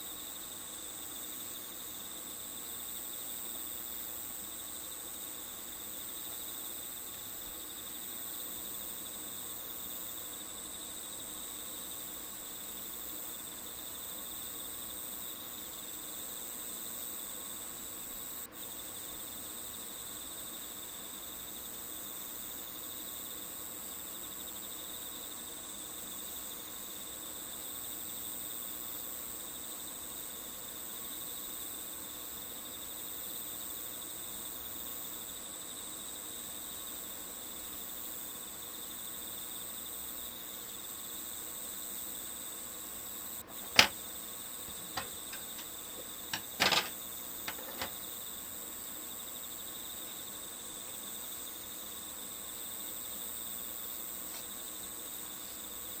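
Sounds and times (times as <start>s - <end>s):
cricket chorus chirring: 0.0s - 56.0s
sharp click: 43.5s - 44.0s.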